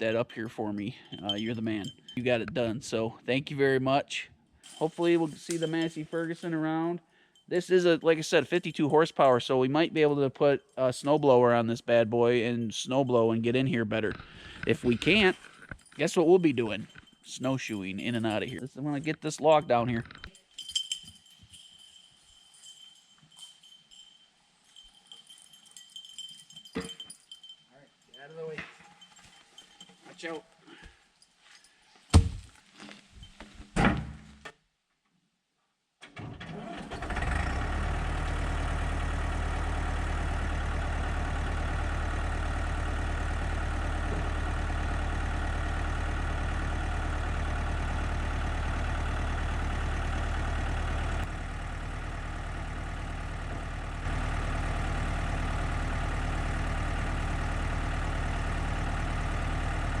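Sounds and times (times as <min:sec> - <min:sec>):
tractor engine running steadily: 0:14.1 - 0:20.8, 0:36.5 - 1:00.0.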